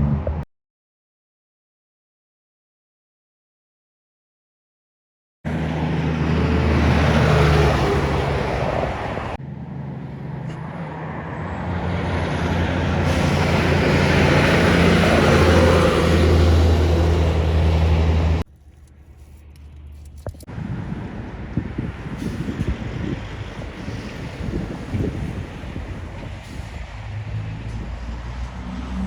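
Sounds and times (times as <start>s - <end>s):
heavy trucks passing: 5.5s - 29.0s.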